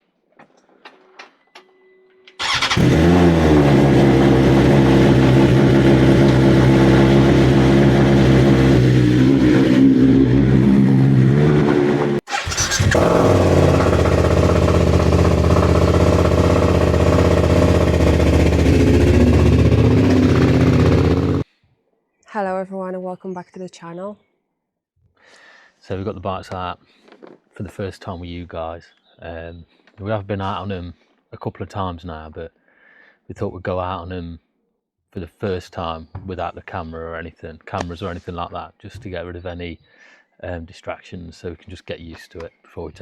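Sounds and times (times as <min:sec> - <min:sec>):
short tone: 0:01.4 - 0:02.3
motorcycle engine starting and idling: 0:02.3 - 0:21.4.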